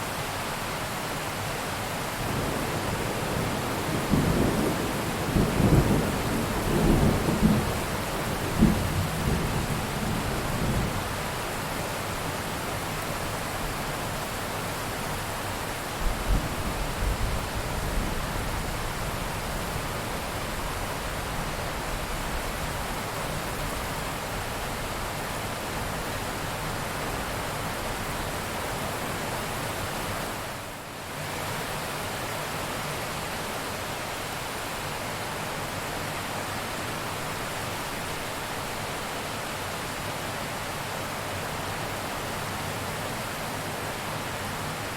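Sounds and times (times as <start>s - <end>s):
heavy rain hiss: 0.0s - 44.9s.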